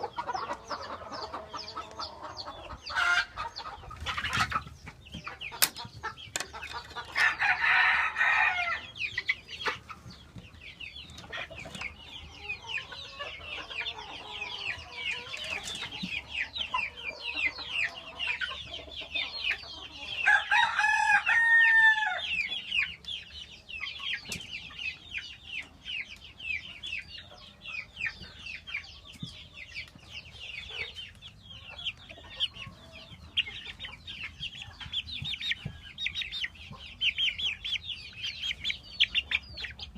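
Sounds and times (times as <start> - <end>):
chickens clucking and peeping: 0.0 - 39.9
rooster crowing: 7.2 - 8.9, 20.2 - 22.2.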